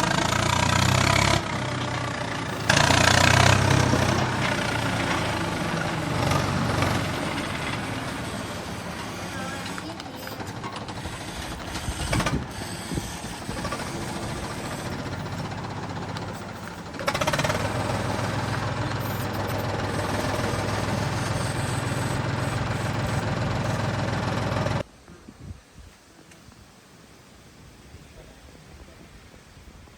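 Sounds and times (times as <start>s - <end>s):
toy tractor humming: 0.0s - 24.8s.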